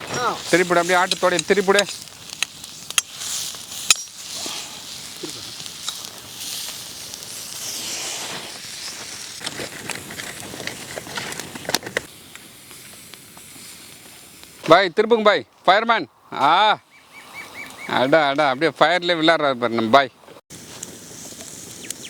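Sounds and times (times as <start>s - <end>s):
sharp crackles and clicks: 0.0s - 14.8s, 20.5s - 22.0s
meat sizzling on hot stones: 0.0s - 14.9s, 20.5s - 22.0s.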